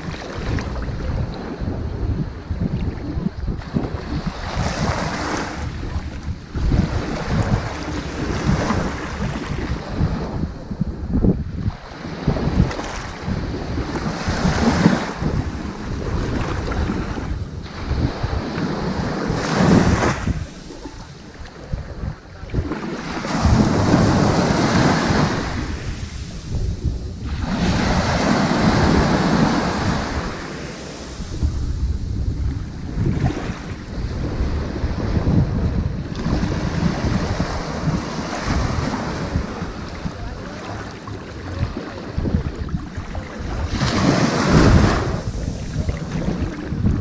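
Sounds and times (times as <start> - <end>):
ocean waves breaking on sand: 0.0 - 47.0
wind buffeting microphone: 0.0 - 47.0.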